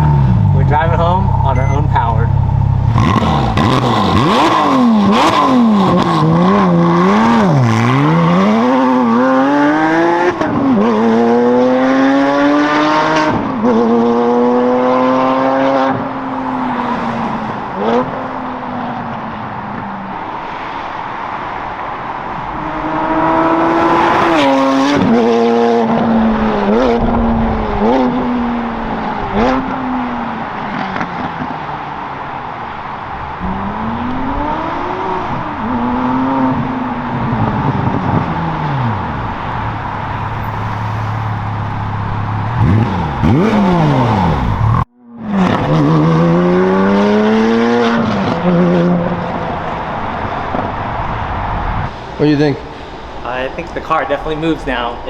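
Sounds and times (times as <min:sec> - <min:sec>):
car engine accelerating hard: 0:00.0 - 0:54.9.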